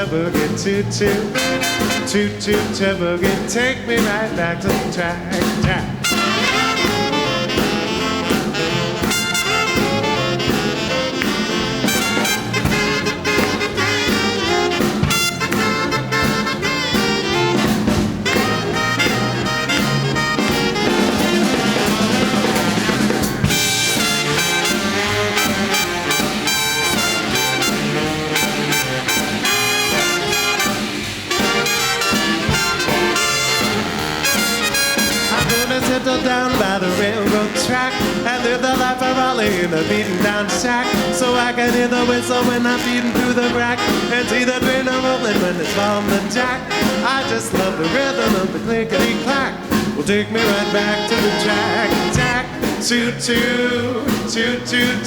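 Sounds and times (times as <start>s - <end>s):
big band swing music: 0.0s - 55.0s.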